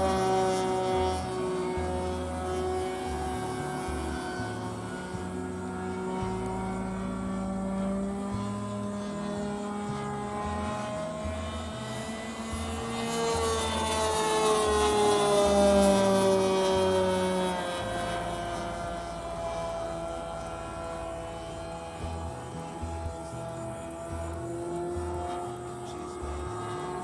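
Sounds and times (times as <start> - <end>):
model airplane engine passing: 0.0 - 27.0.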